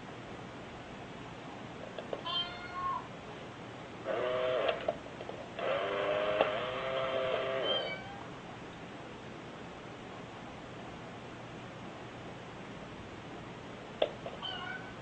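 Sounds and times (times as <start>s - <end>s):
cat meowing: 2.2s - 3.1s, 7.6s - 8.3s, 14.4s - 15.0s
cat yowling low: 14.4s - 15.0s.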